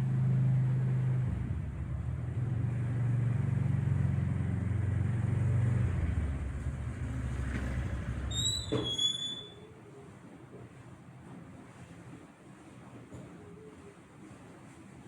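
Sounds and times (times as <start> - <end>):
vehicle engine rumbling: 0.0 - 8.8.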